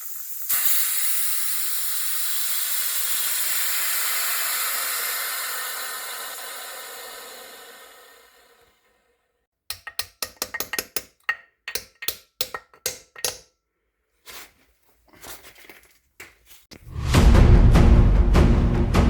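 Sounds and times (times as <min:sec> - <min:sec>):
sharp clinks and knocks: 0:09.7 - 0:13.5
loud music with heavy drums: 0:16.9 - 0:19.0.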